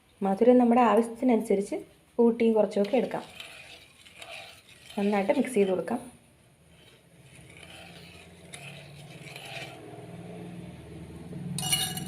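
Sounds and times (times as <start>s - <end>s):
ladle scraping pot bottom: 2.7s - 6.0s, 6.7s - 10.5s, 11.6s - 12.0s.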